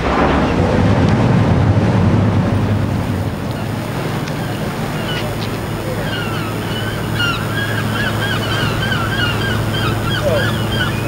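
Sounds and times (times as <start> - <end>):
low engine hum: 0.0 - 11.0
birds yelping calls: 3.3 - 11.0.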